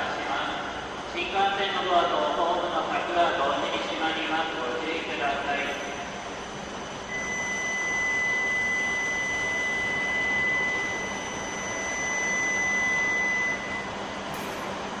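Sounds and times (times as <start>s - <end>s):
electronic warning tone: 5.6s - 15.0s.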